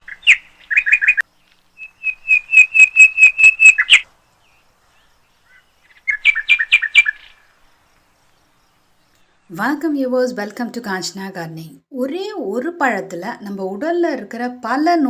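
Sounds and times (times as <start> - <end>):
bird singing repeated chirps: 0.0 - 4.0.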